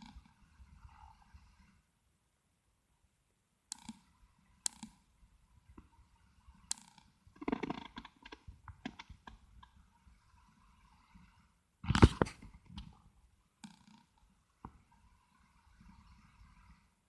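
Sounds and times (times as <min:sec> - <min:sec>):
handling clicks and rubbing: 0:06.7 - 0:09.8.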